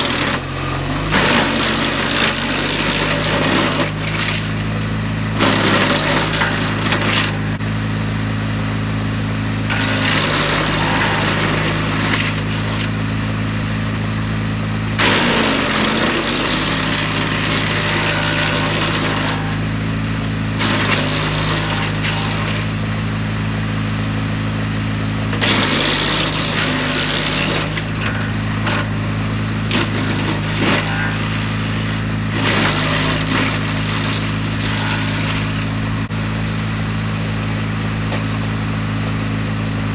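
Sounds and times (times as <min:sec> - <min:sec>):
branches being chipped: 0:00.0 - 0:04.7, 0:05.4 - 0:07.6, 0:09.7 - 0:13.1, 0:14.9 - 0:19.7, 0:20.6 - 0:22.8, 0:25.4 - 0:36.1
wood chipper engine running: 0:00.0 - 0:39.9.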